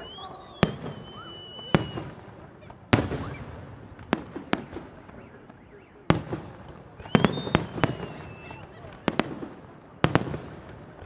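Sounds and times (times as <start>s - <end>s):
high firework whistle: 0.0s - 2.2s, 3.0s - 3.6s, 7.0s - 8.8s.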